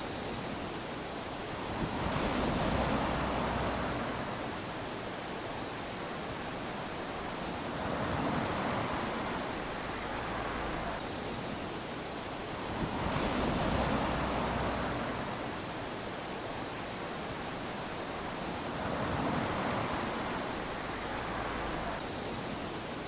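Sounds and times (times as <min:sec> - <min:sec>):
small waves lapping on beach: 0:00.0 - 0:23.0.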